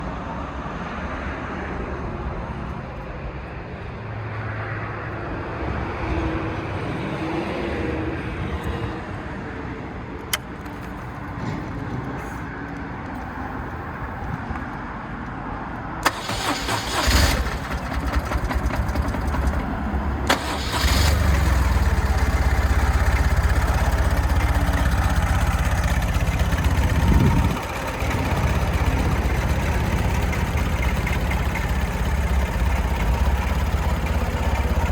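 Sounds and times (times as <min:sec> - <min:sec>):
motorcycle starter cranking: 0:16.0 - 0:34.9
motorcycle engine idling: 0:17.4 - 0:34.9.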